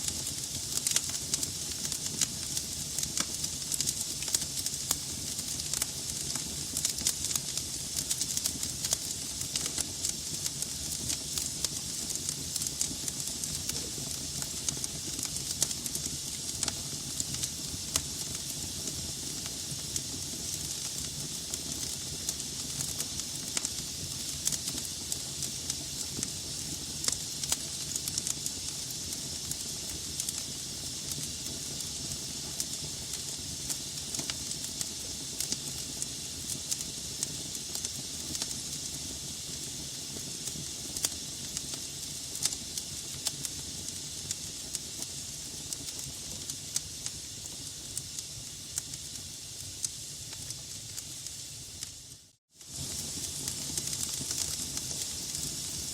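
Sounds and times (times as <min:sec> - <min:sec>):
fire hissing: 0:00.0 - 0:55.9
low rumble of flames: 0:00.1 - 0:48.1, 0:52.7 - 0:55.9
logs crackling and popping: 0:00.7 - 0:18.3, 0:52.7 - 0:55.9.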